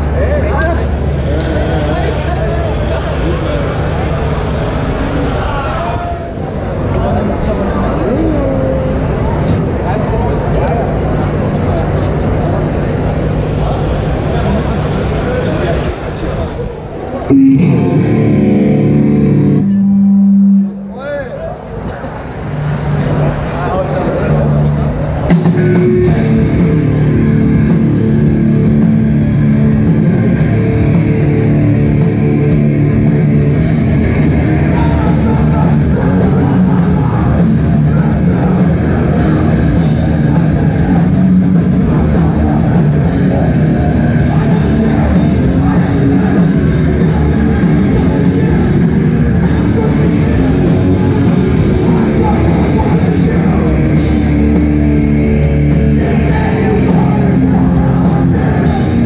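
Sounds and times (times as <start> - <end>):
loud hardcore band playing: 17.3 - 21.3, 24.2 - 59.0.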